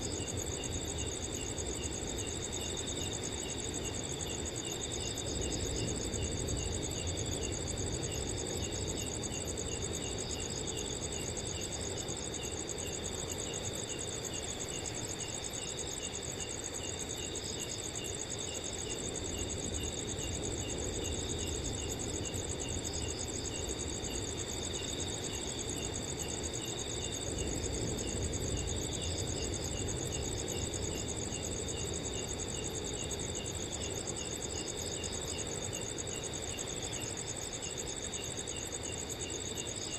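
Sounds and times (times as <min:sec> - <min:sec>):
cricket chirping: 0:00.0 - 0:39.9
crickets trilling: 0:00.0 - 0:39.9.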